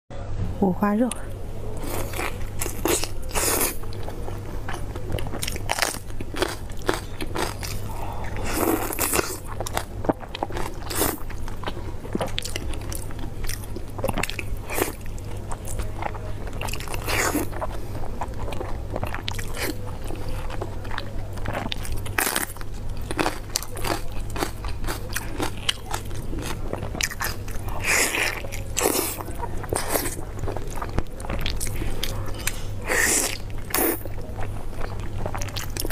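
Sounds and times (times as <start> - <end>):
biting and chewing: 1.8 - 35.9.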